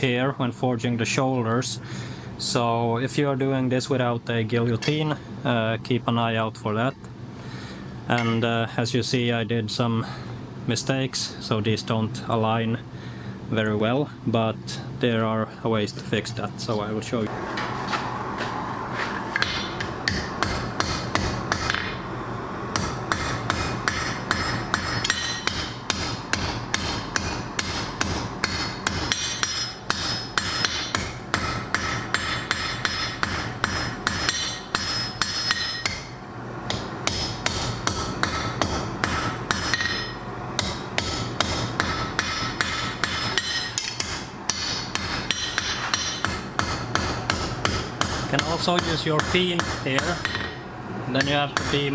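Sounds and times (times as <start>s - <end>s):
hammer clanging on anvil: 4.8s - 5.0s, 8.1s - 8.6s, 19.4s - 22.0s, 22.8s - 36.1s, 36.7s - 50.6s, 51.2s - 51.9s.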